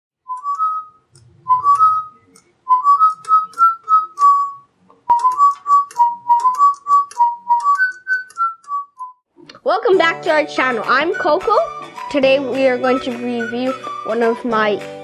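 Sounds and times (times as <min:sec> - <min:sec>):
whistle-like tune: 0:00.3 - 0:09.2, 0:12.8 - 0:14.6.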